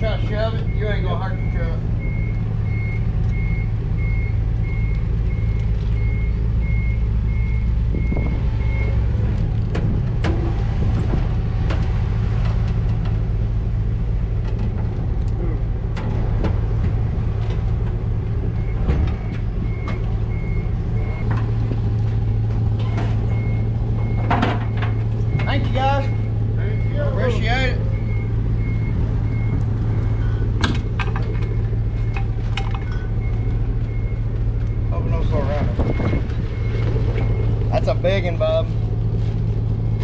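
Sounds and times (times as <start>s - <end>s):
vehicle engine idling: 0.0s - 40.0s
reversing alarm beeping: 0.1s - 9.1s, 18.4s - 21.3s, 22.1s - 38.0s
knocks and clunks: 7.8s - 26.5s, 28.0s - 37.8s.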